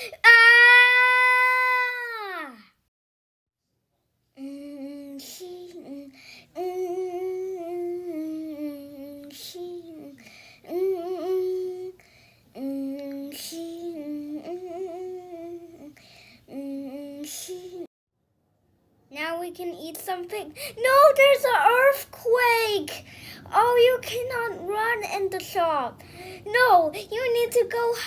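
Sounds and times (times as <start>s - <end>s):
person humming a slow tune: 4.4s - 12.0s, 12.6s - 15.9s.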